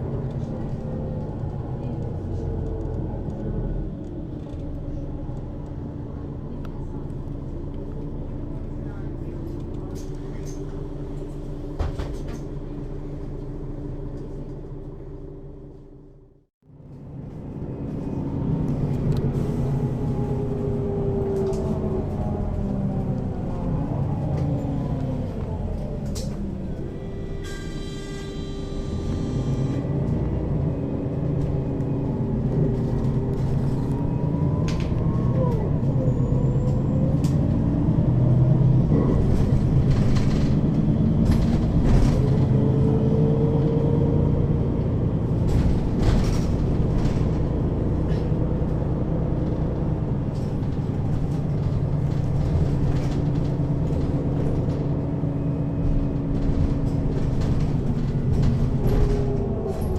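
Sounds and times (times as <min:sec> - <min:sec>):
bus body rattles and knocks: 0:00.0 - 0:15.0, 0:29.9 - 0:59.9
bus diesel engine rumble: 0:00.0 - 0:59.9.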